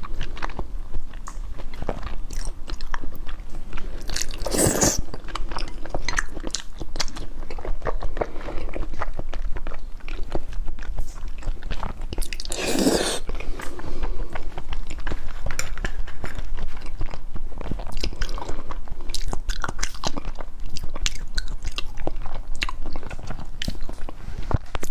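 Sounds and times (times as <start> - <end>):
wet chewing clicks: 0.0 - 24.9
rushing mouth sound: 4.4 - 5.1, 12.4 - 14.0.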